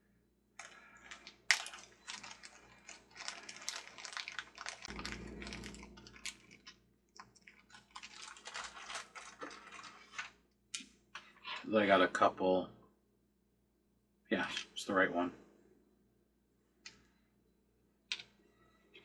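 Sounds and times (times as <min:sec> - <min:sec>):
hands rummaging through small parts: 0:00.6 - 0:10.3.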